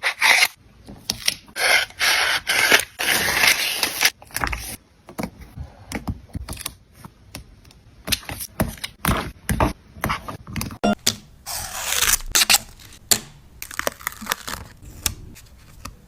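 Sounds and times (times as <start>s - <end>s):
paper scraping: 1.6s - 4.8s.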